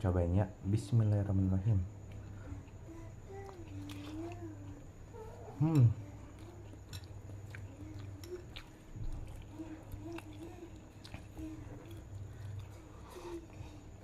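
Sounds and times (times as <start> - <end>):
person chewing: 3.4 - 14.0.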